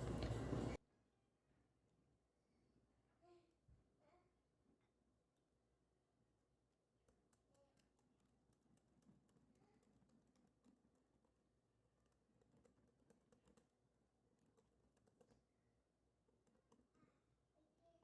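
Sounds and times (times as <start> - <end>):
faint irregular clicks: 0.0 - 0.8, 7.0 - 15.6, 16.2 - 17.0.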